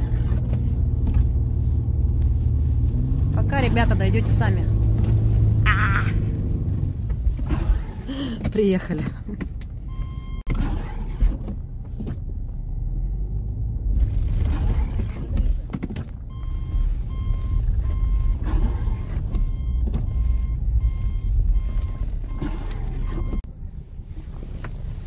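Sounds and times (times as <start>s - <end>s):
car warning chime beeping: 9.8s - 10.5s, 16.3s - 23.4s.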